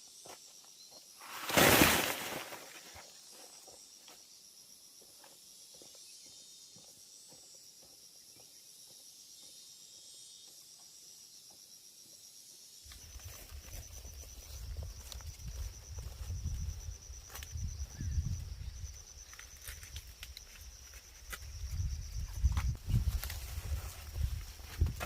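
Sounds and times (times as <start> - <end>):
insects chirring: 0.0 - 25.0
faint ticks and rustles: 12.9 - 17.8, 18.9 - 25.0.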